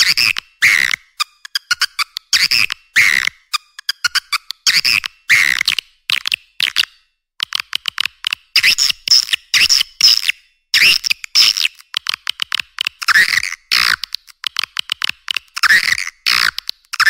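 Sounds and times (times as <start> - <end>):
swiftlet dry clicks: 11.0 - 17.0.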